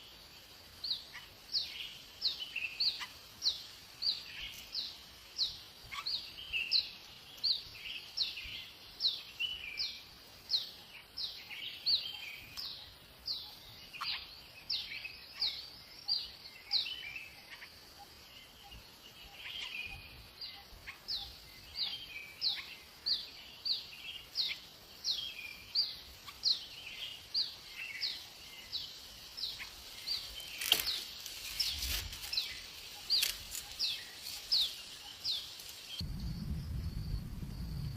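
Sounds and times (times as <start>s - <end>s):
soft low twittering: 31.4s - 37.9s.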